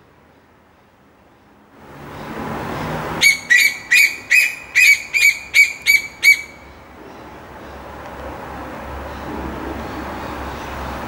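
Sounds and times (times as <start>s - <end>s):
bird calling loudly: 3.2s - 6.8s.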